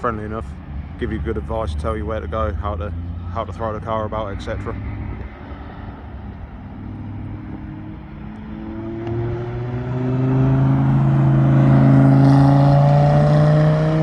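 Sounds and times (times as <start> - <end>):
car engine accelerating: 1.1 - 14.0.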